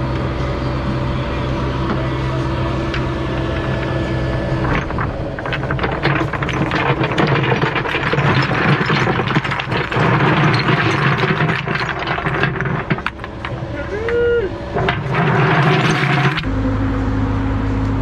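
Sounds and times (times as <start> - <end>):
diesel excavator engine running: 0.0 - 18.0
rocks rattling and knocking: 2.9 - 13.9, 14.6 - 16.5.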